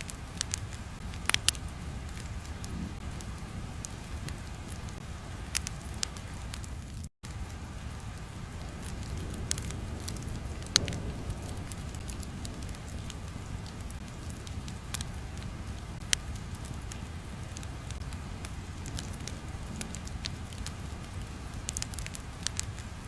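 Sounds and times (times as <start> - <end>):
low rumbling noise: 0.0 - 23.0
sharp crackles and pops: 0.0 - 23.0.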